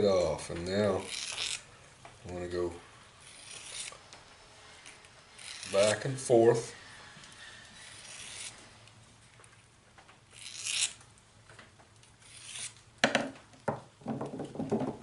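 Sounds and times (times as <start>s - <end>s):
file scraping steel edge: 1.0s - 1.7s, 3.2s - 4.1s, 4.8s - 8.8s, 10.4s - 11.0s, 12.2s - 12.8s.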